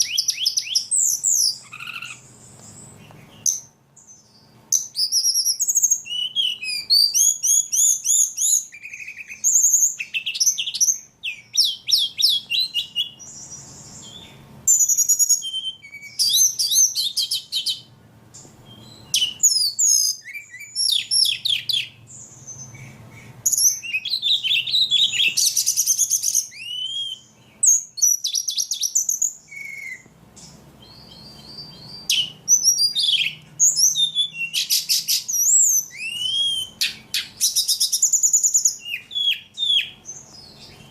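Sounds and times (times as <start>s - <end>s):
songbird chirps and trills: 0.0s - 40.9s.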